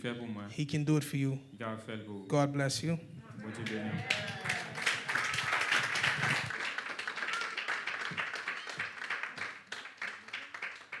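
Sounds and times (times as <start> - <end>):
congregation applauding: 3.5 - 11.0.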